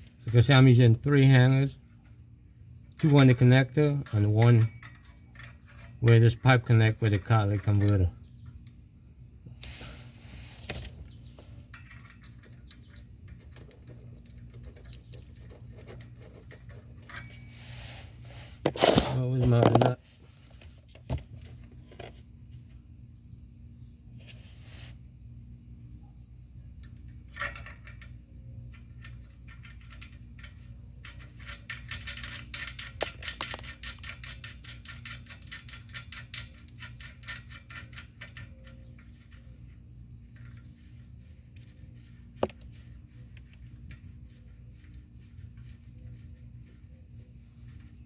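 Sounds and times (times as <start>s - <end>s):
metal hardware clicking and rattling: 0.0s - 8.9s, 10.7s - 17.6s, 26.7s - 48.0s
steady low hum: 0.0s - 48.0s.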